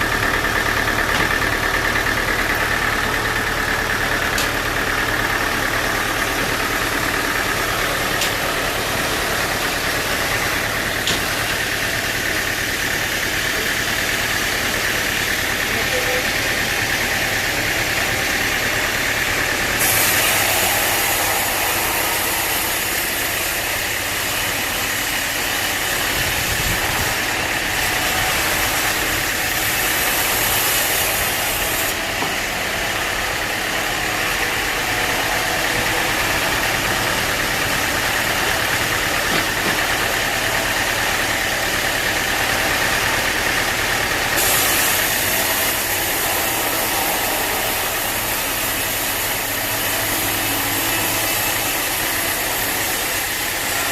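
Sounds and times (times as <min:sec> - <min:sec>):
sawmill machinery running: 0:00.0 - 0:53.9
high hiss: 0:19.8 - 0:26.0.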